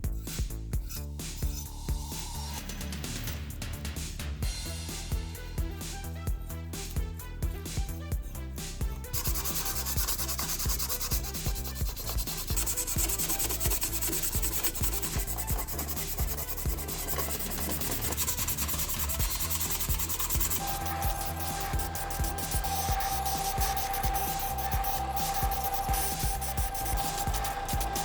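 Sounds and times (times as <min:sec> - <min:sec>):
background music: 0:00.0 - 0:28.0
sanding rubbing hiss: 0:09.1 - 0:28.0.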